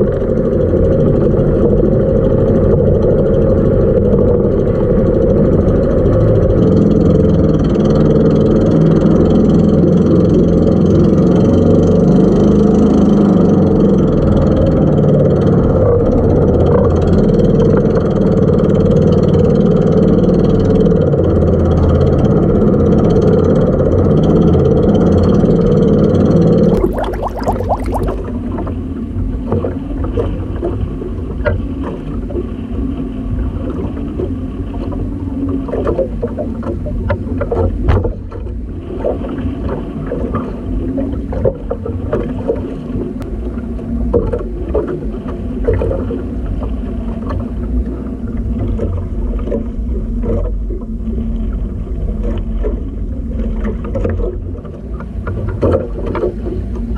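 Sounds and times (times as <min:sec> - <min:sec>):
water splashing against hull: 0:26.7 - 0:28.3.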